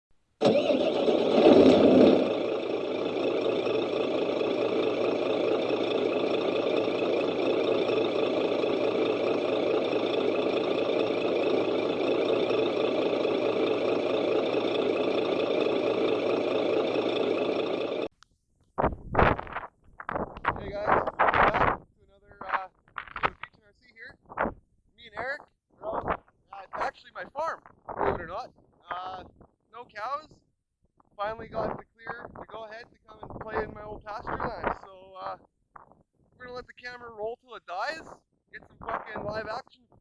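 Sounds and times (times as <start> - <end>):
engine idling: 0.4 - 18.1.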